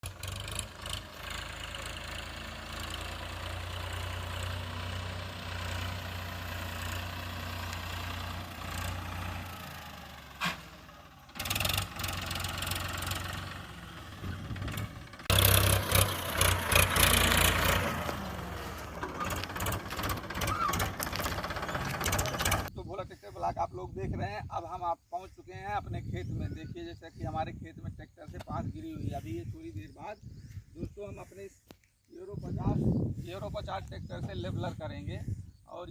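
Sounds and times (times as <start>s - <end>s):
tractor engine running: 0.0s - 22.7s.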